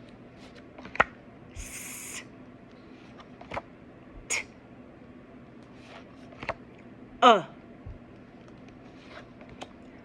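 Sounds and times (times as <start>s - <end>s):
woman saying uh: 7.2s - 7.6s.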